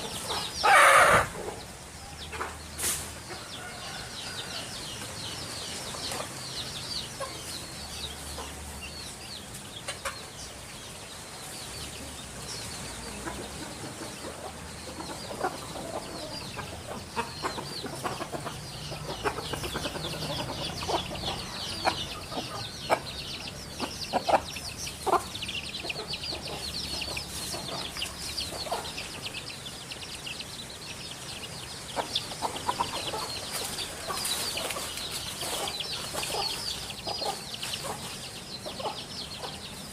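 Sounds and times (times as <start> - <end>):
birds chirping in chorus: 0.0 - 39.9.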